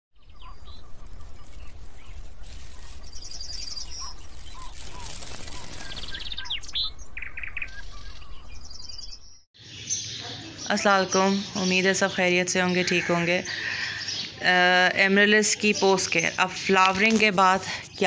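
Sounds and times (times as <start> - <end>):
birds chirping: 0.1 - 18.0
bird trills: 0.2 - 11.8.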